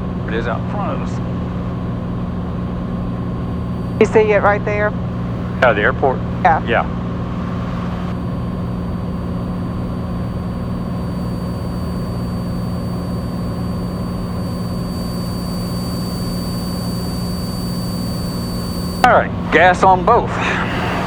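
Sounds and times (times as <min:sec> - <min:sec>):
airplane engine cabin drone: 0:00.0 - 0:21.0.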